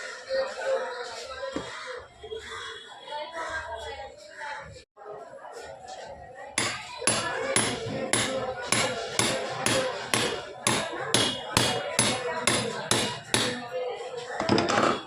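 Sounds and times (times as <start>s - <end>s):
hammer blows: 6.6s - 13.6s.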